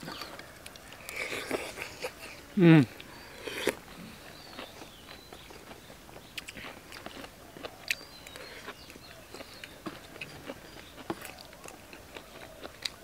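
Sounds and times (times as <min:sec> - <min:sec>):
chewing and mouth smacking: 0:03.0 - 0:13.0.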